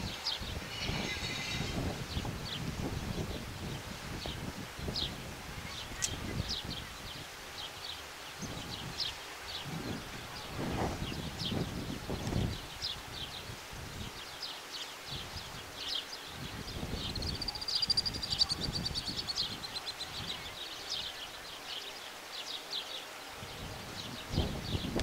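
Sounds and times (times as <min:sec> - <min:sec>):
small birds chirping: 0:00.0 - 0:25.0
rapid high bird trill: 0:16.9 - 0:20.1.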